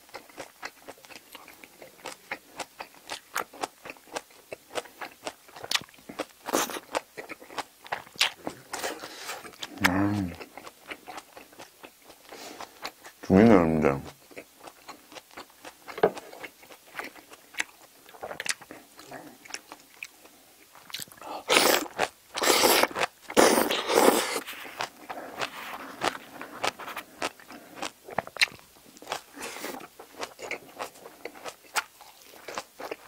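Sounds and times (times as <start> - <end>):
person chewing and crunching food: 0.0 - 13.3, 14.0 - 33.0
person slurping from bowl: 21.2 - 27.9.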